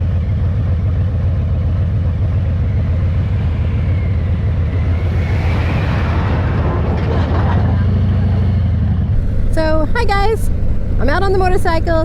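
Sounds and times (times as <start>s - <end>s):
motorcycle engine rumbling: 9.1s - 12.0s.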